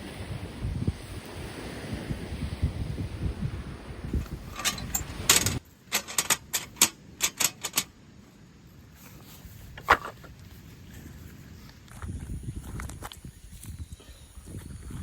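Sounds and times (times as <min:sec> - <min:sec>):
wind on microphone: 0:00.0 - 0:05.6, 0:10.7 - 0:15.0.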